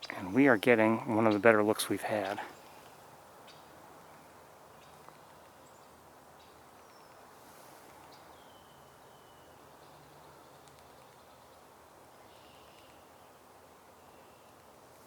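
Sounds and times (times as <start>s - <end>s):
songbird calls: 0.0s - 7.3s, 8.0s - 14.7s.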